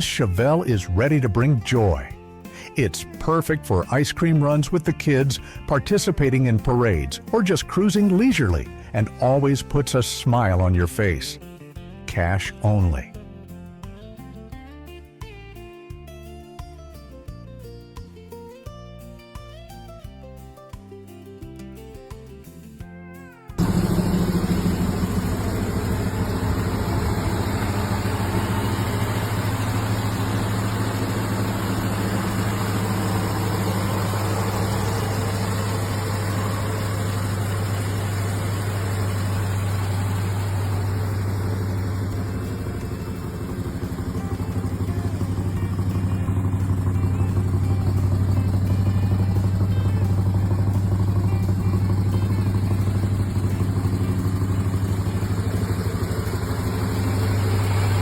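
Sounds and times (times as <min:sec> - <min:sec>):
car engine running: 0:00.0 - 0:11.2, 0:23.6 - 0:58.0.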